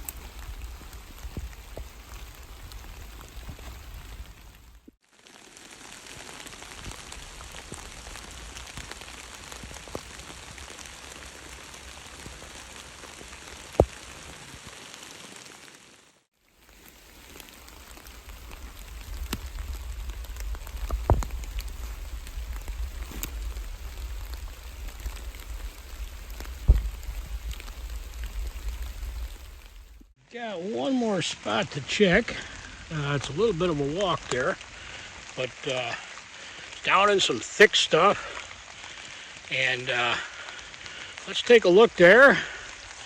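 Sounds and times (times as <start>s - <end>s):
steady rain in woods: 0.0s - 43.0s
low rumble: 18.2s - 30.1s.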